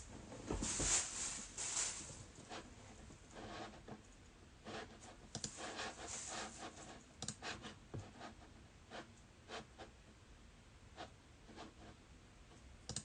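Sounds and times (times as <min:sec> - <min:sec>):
plastic wrapper rustle: 0:00.6 - 0:02.3.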